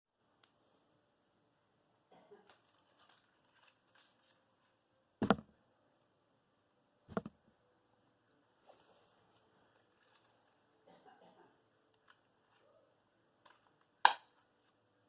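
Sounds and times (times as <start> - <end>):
rustling and handling clicks: 2.5 - 4.8
short loud thumps: 5.2 - 5.5.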